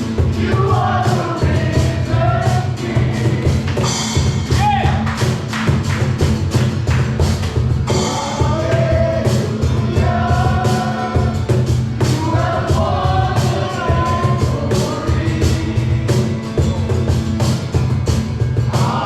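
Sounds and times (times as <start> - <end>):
drum kit beat: 0.0 - 19.0
live band playing: 0.0 - 19.0
person singing: 7.9 - 16.8, 18.7 - 19.0.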